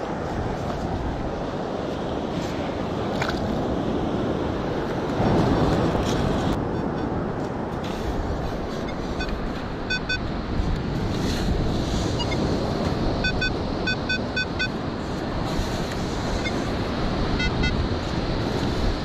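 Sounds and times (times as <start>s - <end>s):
wind noise on microphone: 0.0s - 19.0s
metal detector beeps: 8.8s - 10.3s, 12.1s - 12.5s, 13.2s - 14.8s, 16.3s - 16.7s, 17.3s - 17.8s.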